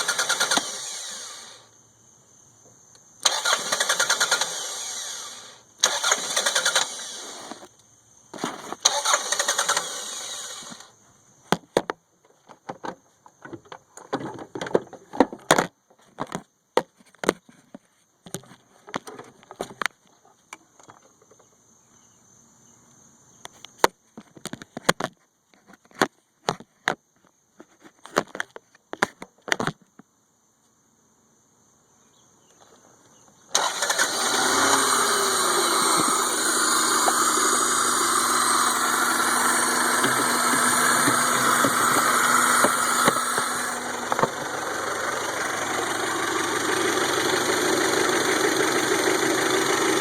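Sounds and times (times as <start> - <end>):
car engine cranking: 0.0 - 1.6, 3.2 - 7.7, 8.4 - 10.9, 33.5 - 50.0.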